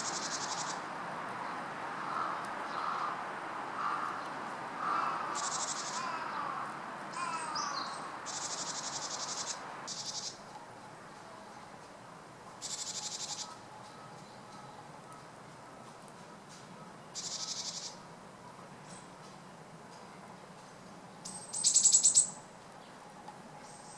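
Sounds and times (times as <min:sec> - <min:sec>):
bird harsh buzzy calls: 0:04.8 - 0:10.4.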